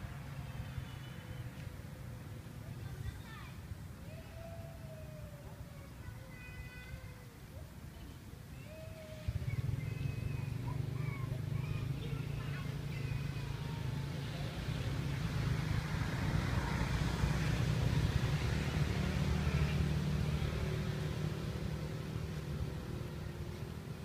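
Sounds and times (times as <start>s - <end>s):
low engine hum: 8.7s - 24.0s.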